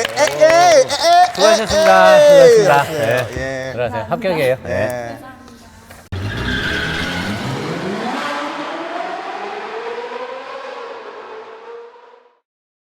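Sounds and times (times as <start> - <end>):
race car engine accelerating: 6.1 - 12.4.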